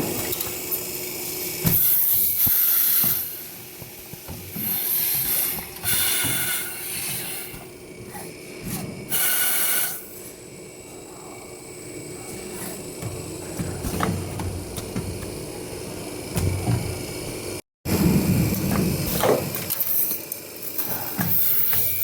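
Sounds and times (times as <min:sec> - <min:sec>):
high-pitched machine hisses: 0:00.7 - 0:03.7, 0:04.5 - 0:11.4.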